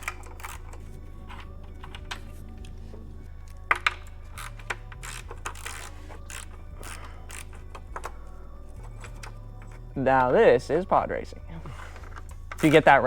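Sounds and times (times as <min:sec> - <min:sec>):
background music with bass: 0:00.0 - 0:13.0.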